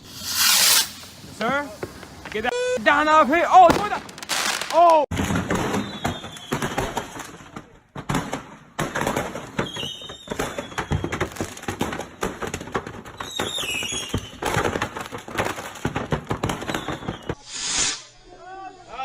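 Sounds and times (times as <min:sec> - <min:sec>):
loud hiss: 0:00.0 - 0:02.2, 0:17.4 - 0:18.2
fireworks bangs and crackles: 0:00.0 - 0:17.5.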